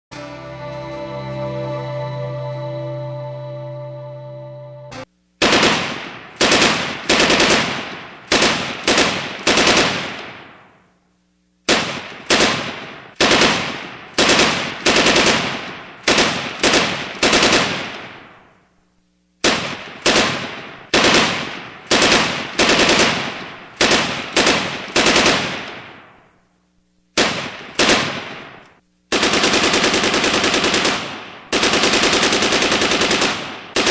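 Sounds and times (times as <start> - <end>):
rapid automatic gunfire: 5.4 - 10.5, 11.7 - 18.2, 19.4 - 26.0, 27.2 - 33.9
echoing gunshots: 27.2 - 33.9.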